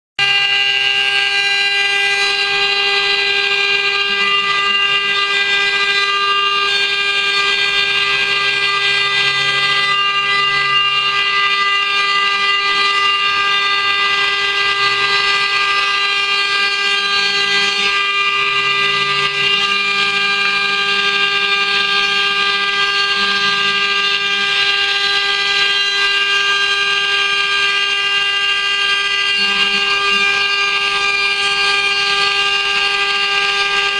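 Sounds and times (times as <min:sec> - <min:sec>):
router spindle whining: 0:00.2 - 0:33.9.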